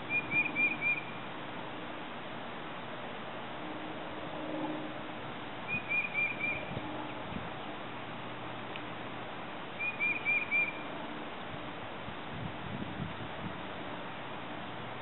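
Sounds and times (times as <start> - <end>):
bird chirping: 0.0 - 1.2, 5.7 - 6.7, 9.8 - 10.8
steady outdoor hiss: 0.0 - 15.0.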